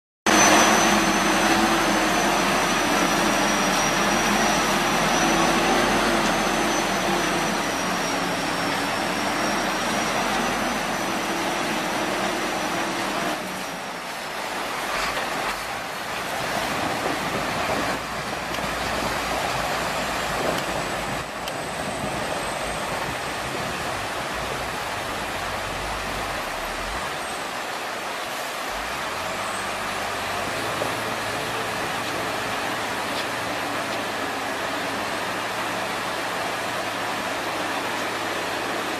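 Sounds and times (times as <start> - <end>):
thin high whine: 0.3 - 16.2
truck engine running: 0.3 - 38.9.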